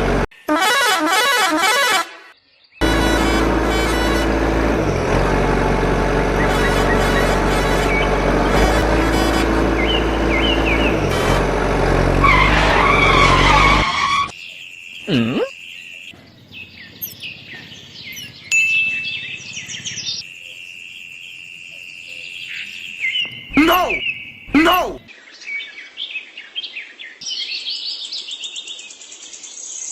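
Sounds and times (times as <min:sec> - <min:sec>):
motor engine running: 0:00.0 - 0:00.3, 0:02.8 - 0:12.3, 0:23.2 - 0:25.0
birds chirping: 0:06.3 - 0:08.8, 0:09.6 - 0:11.2, 0:14.3 - 0:20.3, 0:21.9 - 0:26.0.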